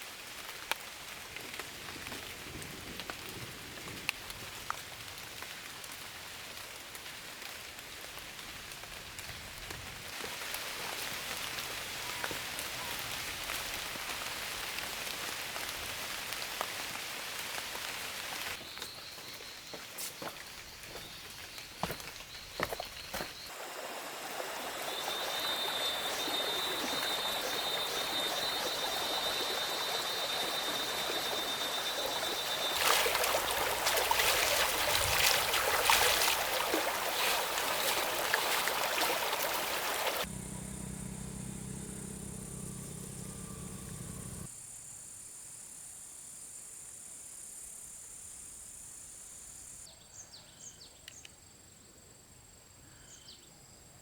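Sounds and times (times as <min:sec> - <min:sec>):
insects calling: 0:18.5 - 0:51.4.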